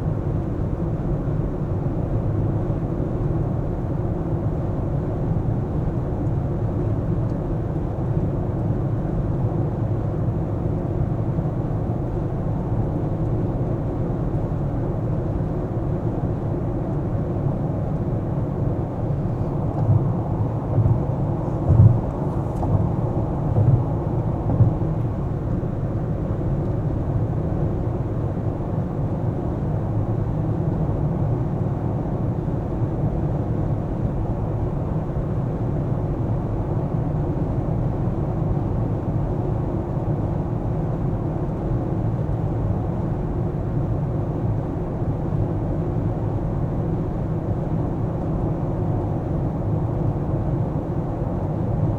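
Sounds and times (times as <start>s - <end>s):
car engine and tyre rumble: 0.3s - 51.9s
short low thumps: 19.4s - 25.2s.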